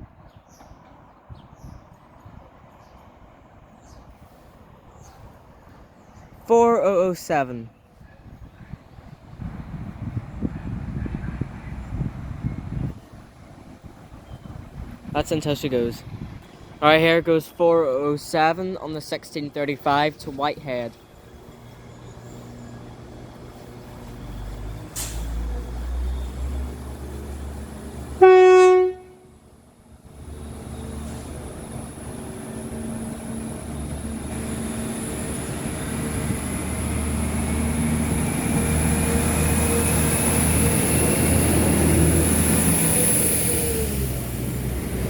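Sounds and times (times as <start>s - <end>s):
rail noise with rising whine: 8.1s - 45.0s
diesel train engines throbbing: 8.2s - 45.0s
train horn blast: 28.0s - 29.5s.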